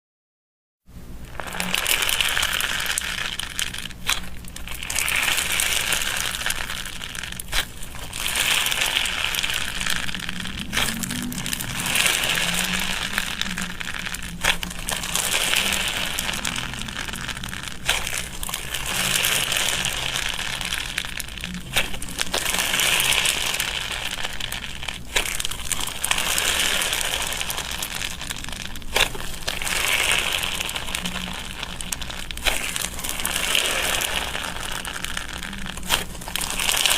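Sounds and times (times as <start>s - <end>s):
slime squished by hand: 1.3s - 36.9s.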